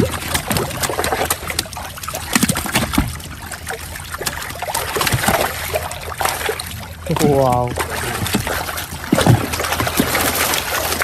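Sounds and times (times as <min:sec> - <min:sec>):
sharp splashes: 0:00.0 - 0:11.0
water splashing and trickling: 0:00.0 - 0:11.0
knocks on boat: 0:08.2 - 0:10.3.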